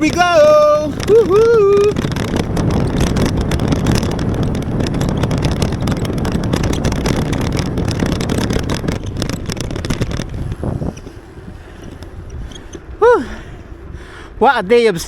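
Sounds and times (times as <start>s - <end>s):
rain rattling: 0.0s - 10.7s
wind buffeting microphone: 0.0s - 15.0s.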